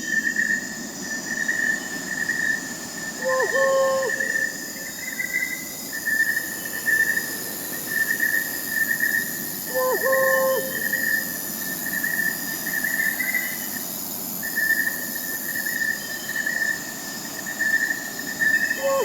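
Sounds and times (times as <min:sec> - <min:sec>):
crickets chirping: 0:00.0 - 0:19.0
owl whistled call: 0:03.2 - 0:04.9, 0:09.7 - 0:11.2.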